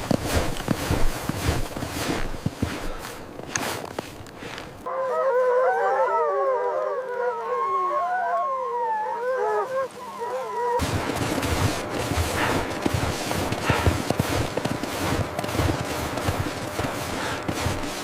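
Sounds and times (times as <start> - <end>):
wolves howling in chorus: 4.9 - 10.8.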